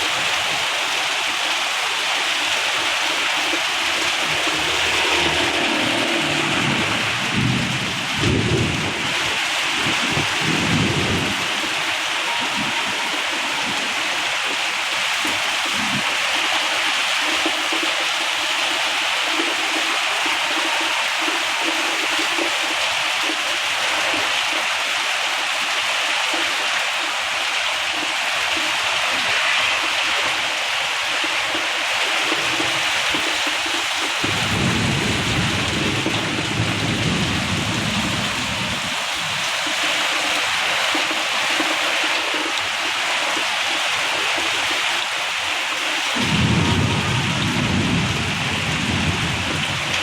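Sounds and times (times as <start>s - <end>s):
heavy rain pouring: 0.0s - 50.0s
low thunder rumble: 3.8s - 13.2s, 34.2s - 39.0s, 46.2s - 50.0s.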